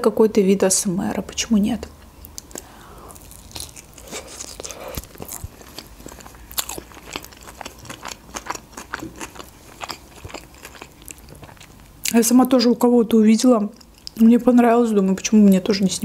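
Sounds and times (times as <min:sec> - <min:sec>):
woman chewing food: 0:02.2 - 0:12.1.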